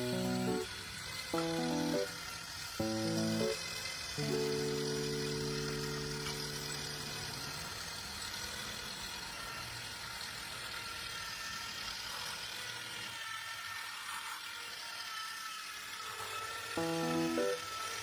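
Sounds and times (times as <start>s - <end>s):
small motor whirring with hiss: 0.0s - 18.0s.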